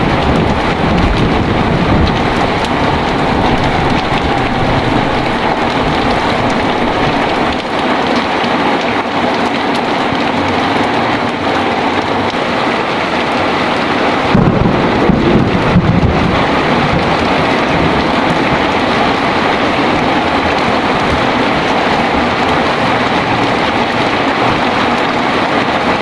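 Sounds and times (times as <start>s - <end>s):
low roll of thunder: 0.0s - 7.9s, 14.1s - 24.9s
heavy rain pouring: 0.0s - 26.0s.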